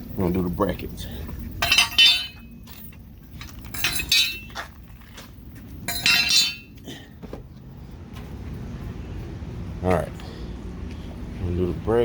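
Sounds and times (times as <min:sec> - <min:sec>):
metal brackets and bolts clinking: 0:01.6 - 0:06.8.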